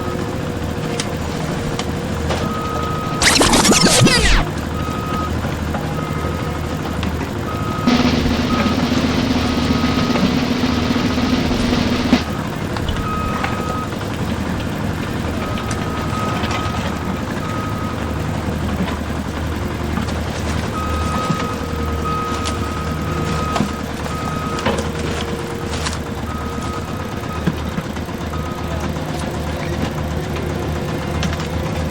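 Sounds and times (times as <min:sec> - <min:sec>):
vehicle reversing alarm beeping: 0:02.4 - 0:14.0, 0:15.2 - 0:29.9
sharp clicks: 0:03.2 - 0:04.5.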